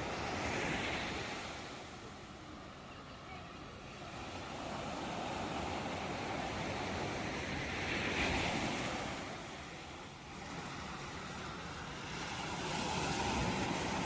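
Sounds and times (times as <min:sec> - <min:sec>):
ocean waves breaking on shore: 0:00.0 - 0:14.0.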